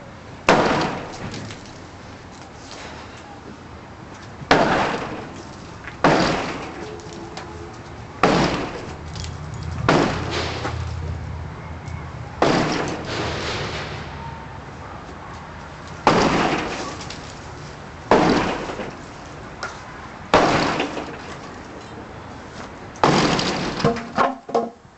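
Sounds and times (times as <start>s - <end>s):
crashing blows on porch roof: 0.4s - 1.9s, 4.4s - 7.2s, 8.2s - 9.2s, 9.8s - 11.2s, 12.4s - 14.2s, 15.9s - 21.8s, 23.0s - 24.8s
debris clattering: 12.4s - 14.1s, 16.0s - 17.4s, 18.1s - 19.1s, 20.4s - 21.7s, 23.0s - 24.7s.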